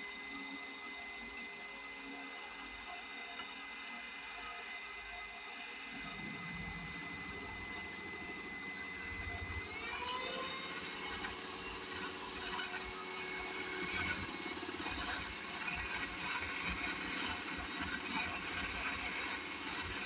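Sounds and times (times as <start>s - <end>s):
lathe motor whining: 5.8s - 20.0s.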